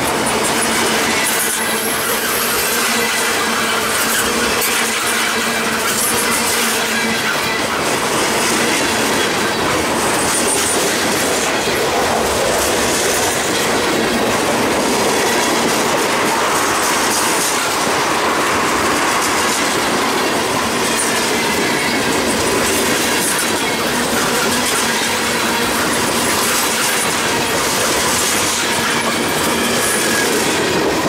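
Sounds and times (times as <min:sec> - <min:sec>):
wheel squeals: 0:00.0 - 0:11.8, 0:19.2 - 0:31.0
train wheels rumbling on rails: 0:00.0 - 0:31.0
wheels clicking over rail joints: 0:00.0 - 0:31.0.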